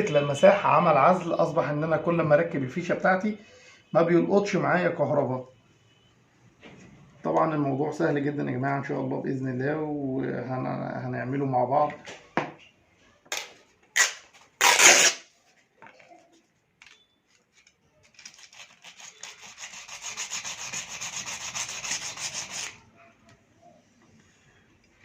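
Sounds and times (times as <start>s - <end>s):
rapid rubbing on plastic parts: 18.2s - 22.8s.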